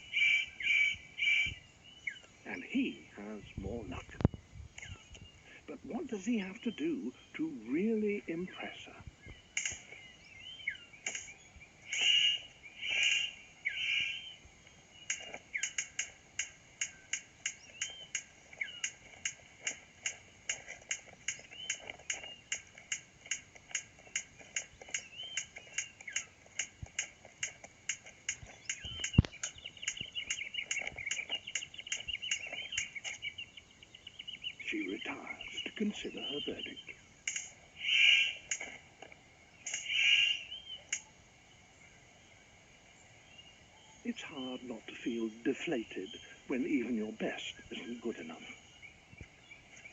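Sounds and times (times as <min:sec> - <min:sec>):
sharp bird clicks: 0:00.0 - 0:02.4, 0:04.0 - 0:05.6, 0:09.2 - 0:41.3
harsh bird calls: 0:00.0 - 0:49.9
thin bird chirping: 0:00.0 - 0:49.9.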